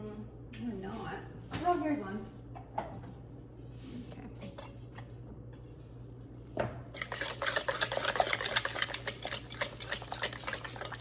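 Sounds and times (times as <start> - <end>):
whisk stirring yogurt in a bowl: 6.9 - 11.0.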